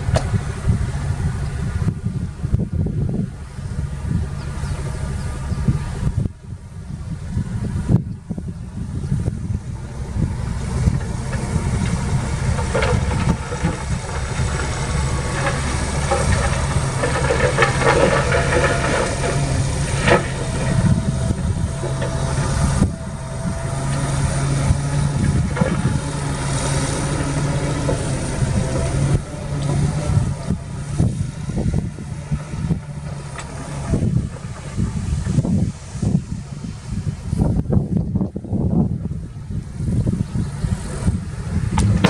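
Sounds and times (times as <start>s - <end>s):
sharp knocks: 0.0s - 0.6s
heavy diesel engine running: 0.0s - 42.0s.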